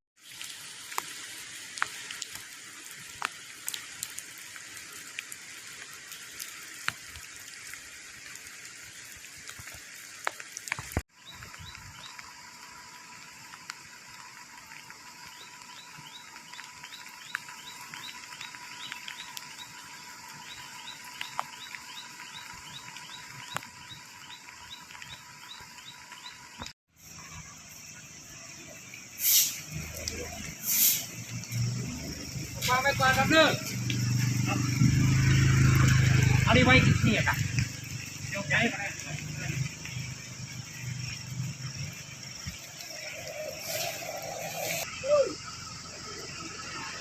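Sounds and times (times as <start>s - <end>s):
raindrops ticking: 0.2s - 26.8s, 28.9s - 44.9s
steady rain hiss: 0.2s - 47.0s
high chirping call: 15.2s - 26.7s.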